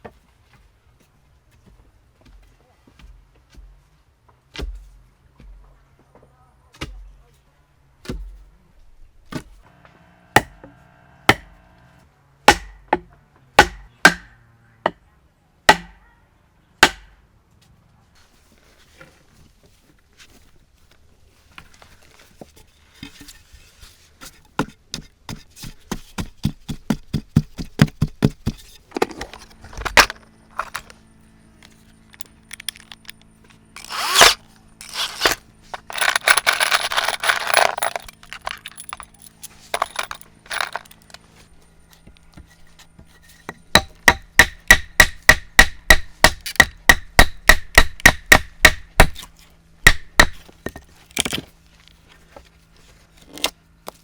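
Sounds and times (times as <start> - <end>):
sharp tool knocks: 15.7 - 16.0, 43.5 - 49.2
tool scraping: 31.6 - 44.8.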